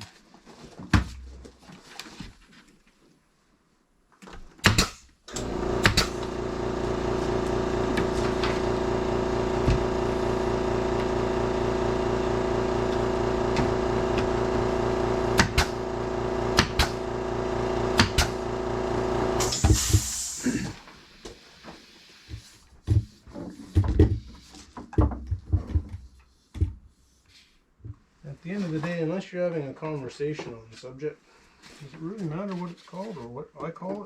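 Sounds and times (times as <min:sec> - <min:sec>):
motor-driven machine running: 0:05.3 - 0:22.2
short hiss: 0:19.4 - 0:22.2.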